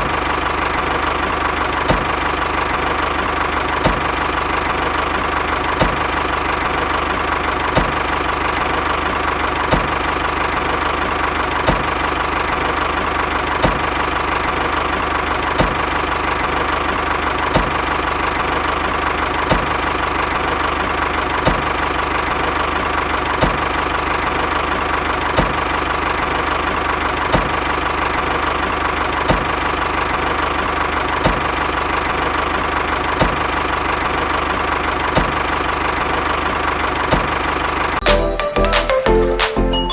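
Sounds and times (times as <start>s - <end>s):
sharp click: 8.5s - 8.8s.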